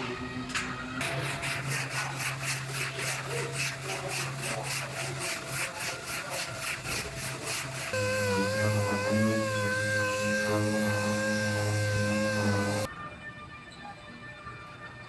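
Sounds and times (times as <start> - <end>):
hand sanding strokes: 1.0 - 12.9.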